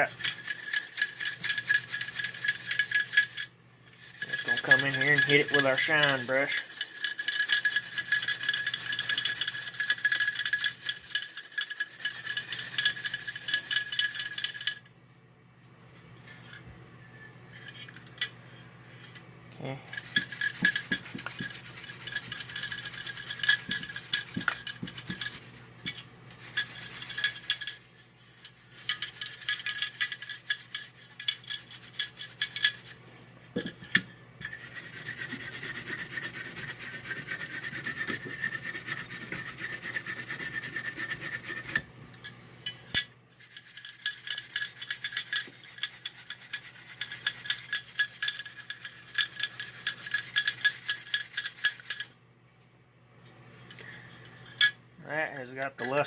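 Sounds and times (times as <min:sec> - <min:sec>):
brush scrubbing plastic: 0:00.0 - 0:14.7, 0:19.9 - 0:33.1, 0:34.4 - 0:41.9, 0:43.3 - 0:52.1.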